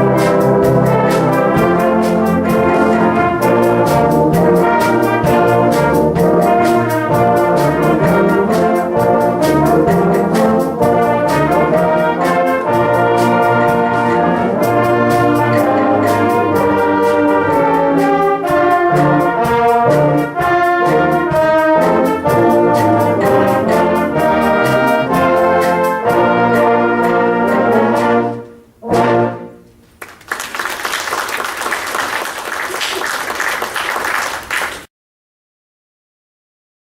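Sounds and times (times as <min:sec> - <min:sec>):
brass band playing: 0:00.0 - 0:30.0
audience applause: 0:30.0 - 0:34.9.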